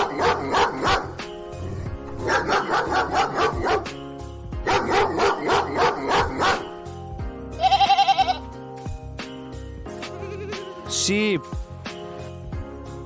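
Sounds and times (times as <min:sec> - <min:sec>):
dog barking: 0:00.0 - 0:01.2, 0:02.2 - 0:04.0, 0:04.6 - 0:06.7
background music: 0:00.0 - 0:13.0.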